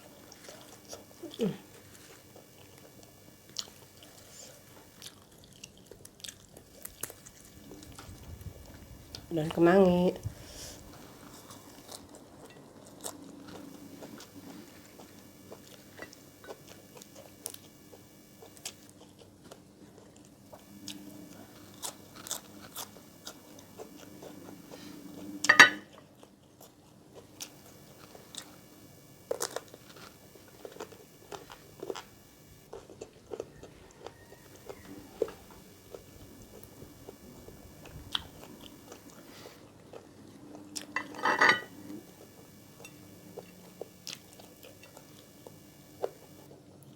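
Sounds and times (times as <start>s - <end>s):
person chewing crunchy food: 0.0s - 9.3s, 10.2s - 46.5s.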